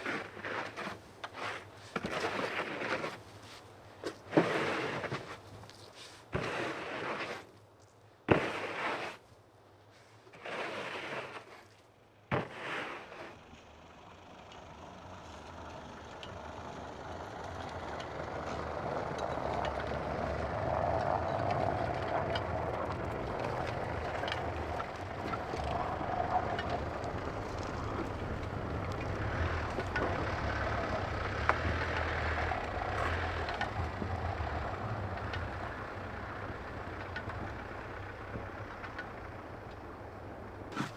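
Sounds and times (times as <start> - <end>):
short scraping noises: 0.0 - 3.6, 4.3 - 7.5, 8.3 - 9.2, 10.0 - 13.4
engine running: 12.9 - 40.9.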